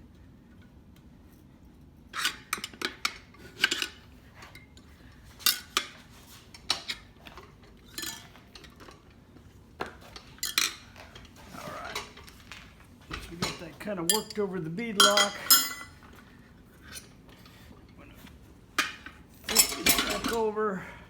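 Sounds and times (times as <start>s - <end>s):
tire spoons clanking on rim: 13.1s - 16.0s, 18.8s - 20.5s.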